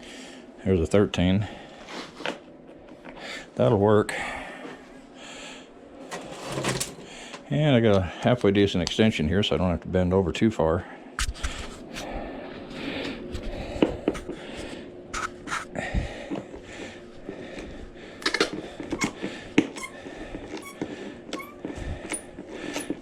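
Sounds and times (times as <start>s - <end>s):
person breathing hard: 0.0s - 0.6s, 3.1s - 5.8s, 7.0s - 7.5s, 10.9s - 15.0s, 15.6s - 23.0s.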